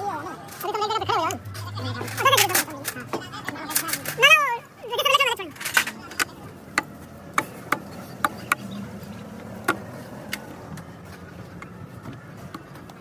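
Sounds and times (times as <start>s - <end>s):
metal tools clicking and knocking: 0.5s - 4.4s, 5.5s - 6.9s.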